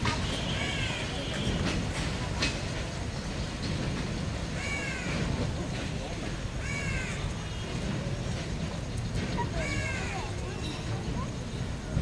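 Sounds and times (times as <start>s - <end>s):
freight wagon wheels rumbling: 0.0s - 12.0s
crow cawing: 6.6s - 7.2s.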